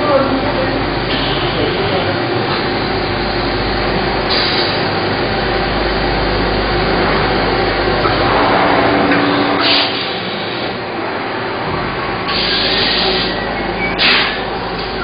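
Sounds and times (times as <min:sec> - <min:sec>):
workshop machinery running: 0:00.0 - 0:15.0
low hum: 0:05.2 - 0:12.3.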